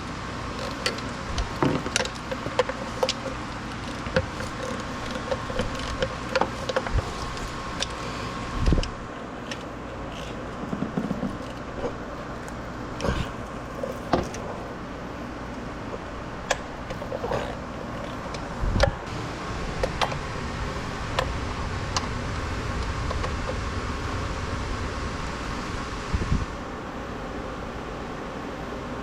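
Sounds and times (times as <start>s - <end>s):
steady background noise: 0.0s - 29.0s
hand tools clicking and knocking: 0.5s - 8.0s.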